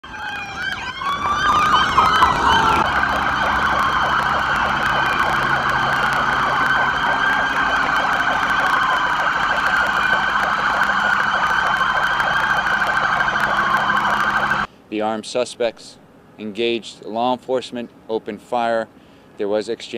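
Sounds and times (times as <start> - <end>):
police sirens wailing: 0.0 - 14.7.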